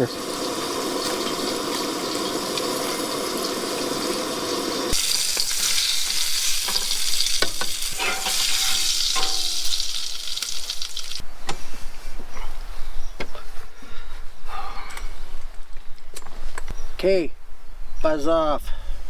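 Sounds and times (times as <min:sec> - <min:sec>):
food sizzling in a pan: 0:00.0 - 0:11.2.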